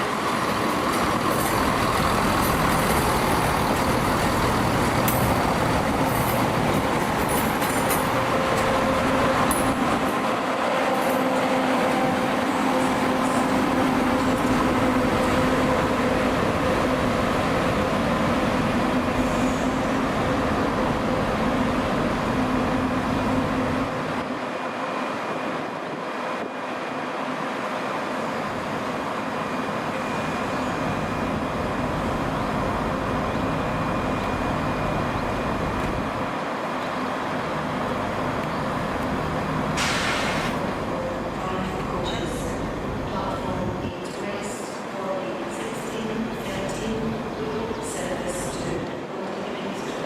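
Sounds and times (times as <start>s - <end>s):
diesel train engines humming: 0.0s - 50.0s
short hiss: 39.8s - 40.6s.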